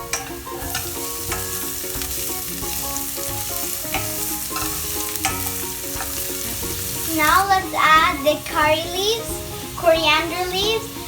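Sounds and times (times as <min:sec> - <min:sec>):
vegetables sizzling in hot oil: 0:00.0 - 0:11.0
utensil knocking against pan: 0:00.1 - 0:07.1.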